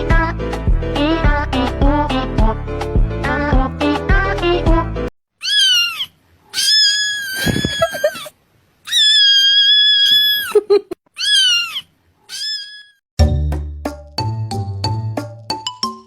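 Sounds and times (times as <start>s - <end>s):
cat meowing: 5.4s - 8.3s, 8.9s - 10.6s, 11.2s - 13.0s.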